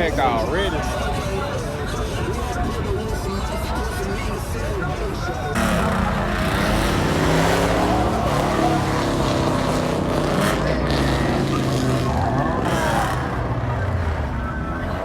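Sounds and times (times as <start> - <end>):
car engine revving: 5.5 - 15.0.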